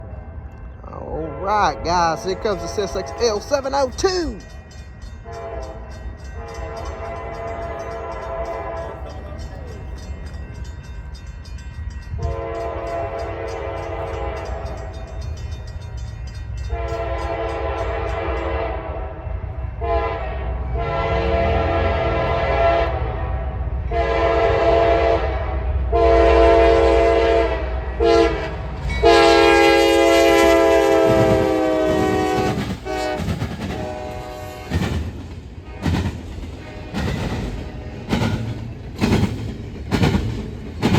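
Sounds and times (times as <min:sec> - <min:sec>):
locomotive air horn blasts: 0:01.2 - 0:04.0, 0:05.2 - 0:09.0, 0:12.2 - 0:14.8, 0:16.7 - 0:19.2, 0:19.8 - 0:34.8
train wheels clattering on rails: 0:02.0 - 0:18.8, 0:28.2 - 0:40.9.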